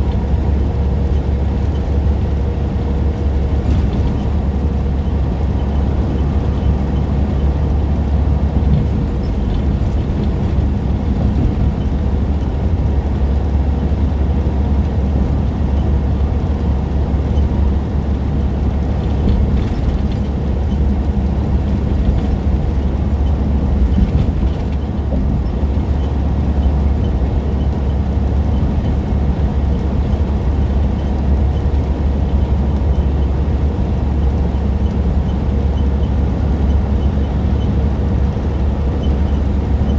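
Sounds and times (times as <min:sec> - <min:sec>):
diesel truck engine drone: 0:00.0 - 0:39.9
road noise: 0:00.0 - 0:39.9.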